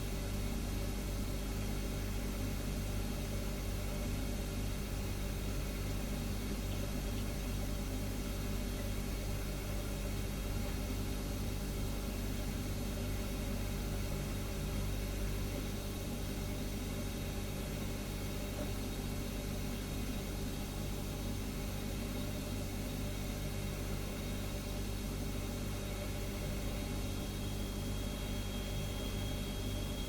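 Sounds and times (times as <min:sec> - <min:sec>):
refrigerator humming: 0:00.0 - 0:30.0.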